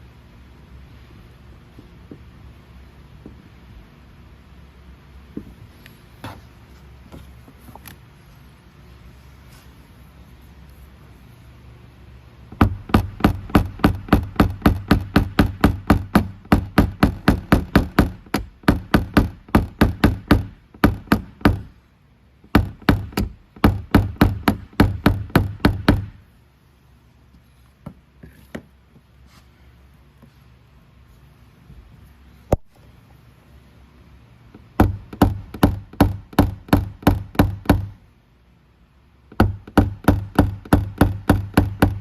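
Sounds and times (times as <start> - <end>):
hammer tapping punch on metal: 12.5 - 21.7, 22.5 - 26.2, 34.6 - 38.0, 39.3 - 42.0.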